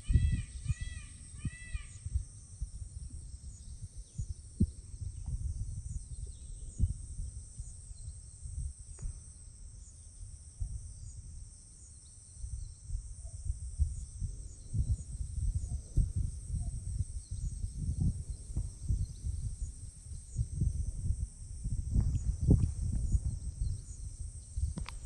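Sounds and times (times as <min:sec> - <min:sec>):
high-pitched insect drone: 0:00.0 - 0:25.0
low rumbling and thumps: 0:14.8 - 0:25.0.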